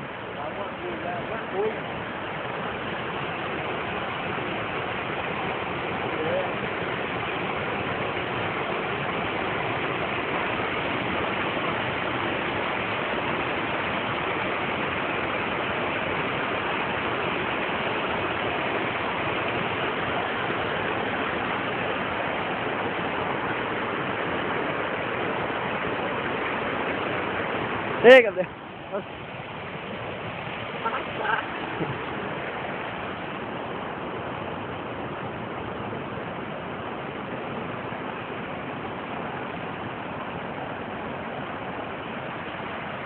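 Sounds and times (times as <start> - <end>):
waterfall roaring: 0.0 - 43.0.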